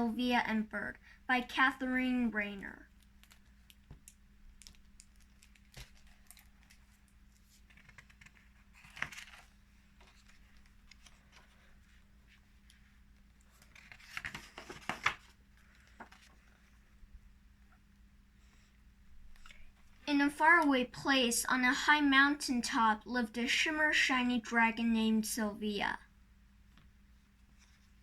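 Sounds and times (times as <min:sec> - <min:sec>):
faint steady hum: 0:00.0 - 0:28.0
paper pages rustling: 0:03.0 - 0:17.0.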